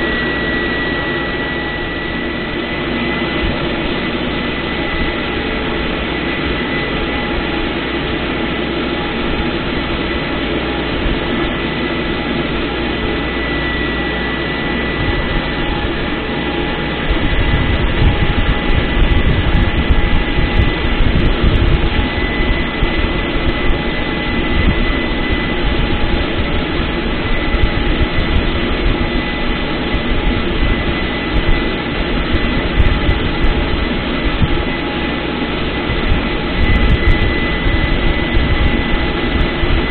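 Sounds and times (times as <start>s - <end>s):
thin high whine: 0.0s - 39.9s
tractor diesel engine running: 0.0s - 39.9s
rough low rumble: 10.6s - 29.0s.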